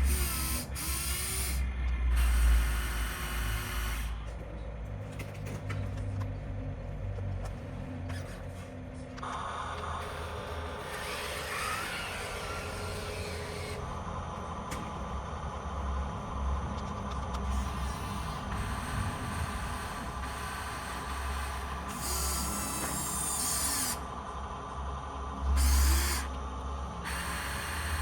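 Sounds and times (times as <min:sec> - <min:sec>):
toy electric motors whirring: 0:00.0 - 0:04.2, 0:09.7 - 0:13.9, 0:17.1 - 0:24.1, 0:25.4 - 0:26.4, 0:27.0 - 0:28.0
high motor whine: 0:00.0 - 0:04.6, 0:07.5 - 0:28.0.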